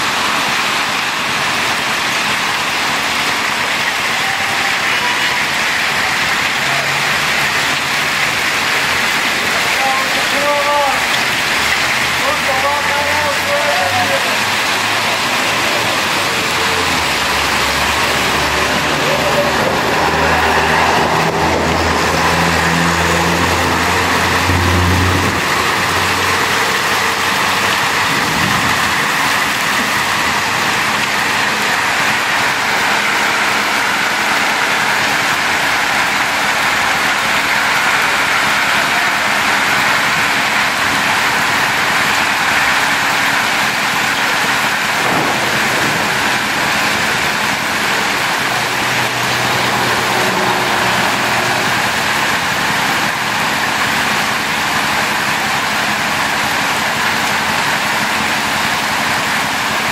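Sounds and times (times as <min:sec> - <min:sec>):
heavy rain pouring: 0:00.0 - 0:59.9
car engine passing: 0:11.1 - 0:54.6.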